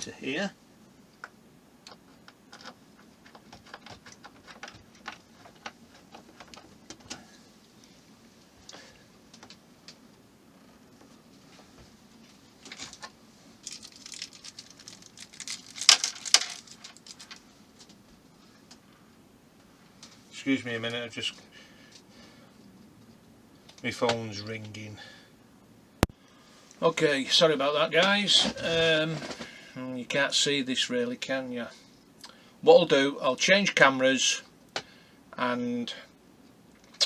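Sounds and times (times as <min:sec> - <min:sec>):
small screws and plastic parts rattling: 0:01.9 - 0:07.2, 0:12.6 - 0:17.4
clatter of parts: 0:12.6 - 0:17.4.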